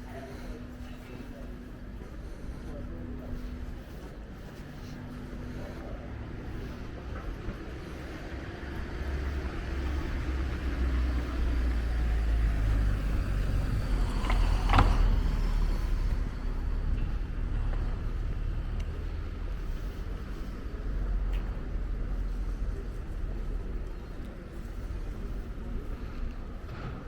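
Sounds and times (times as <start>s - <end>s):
vehicle passing by: 6.6s - 20.3s.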